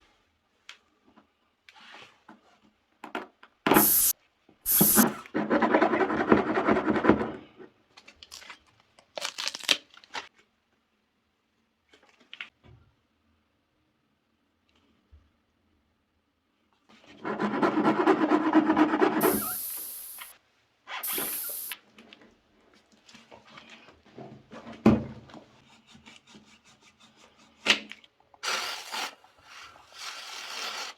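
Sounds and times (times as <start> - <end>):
short sharp hisses: 3.7 - 4.1, 4.7 - 5.0, 19.2 - 20.4, 21.0 - 21.8.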